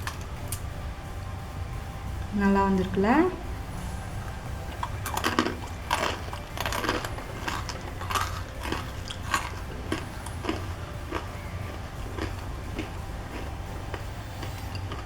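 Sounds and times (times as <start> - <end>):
crunching fried snack: 4.7 - 15.0.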